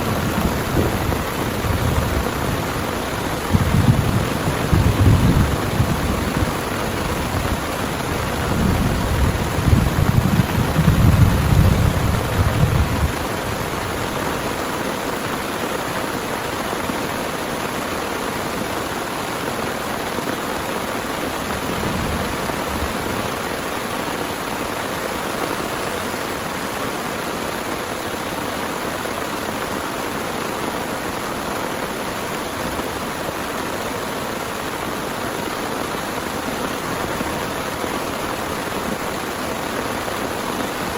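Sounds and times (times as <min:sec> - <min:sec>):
low rumble of thunder: 0:00.0 - 0:14.3, 0:21.4 - 0:23.5
heavy rain falling: 0:00.0 - 0:40.9.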